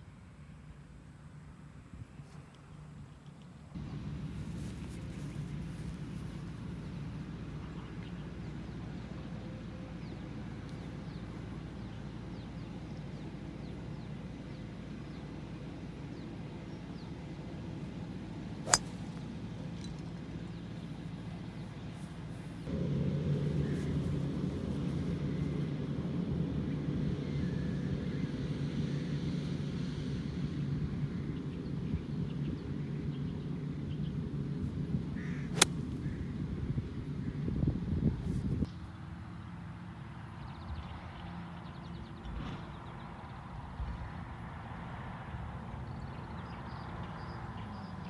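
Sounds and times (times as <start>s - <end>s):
low outdoor rumble: 0.0s - 38.7s
golf club striking ball: 18.6s - 20.1s, 35.4s - 36.1s.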